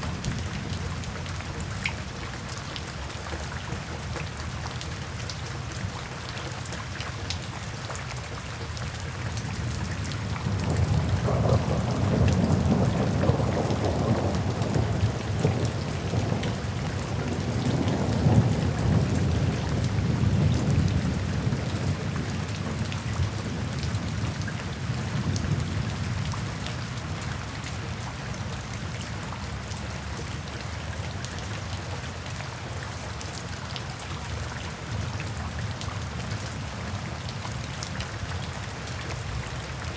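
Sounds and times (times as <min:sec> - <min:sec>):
steady rain falling: 0:00.0 - 0:39.9
rumble of thunder: 0:10.1 - 0:26.6.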